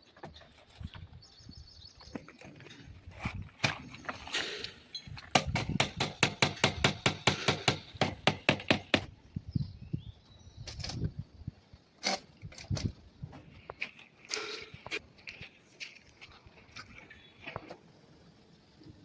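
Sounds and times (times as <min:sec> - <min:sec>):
sharp knocks: 0:05.3 - 0:09.1.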